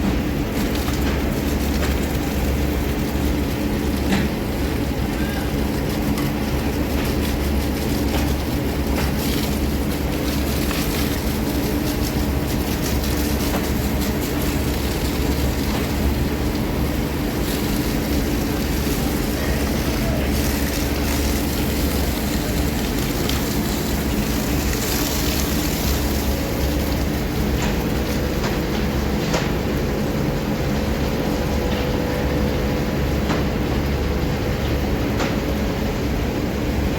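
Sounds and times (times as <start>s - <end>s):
diesel engine running: 0.0s - 30.5s.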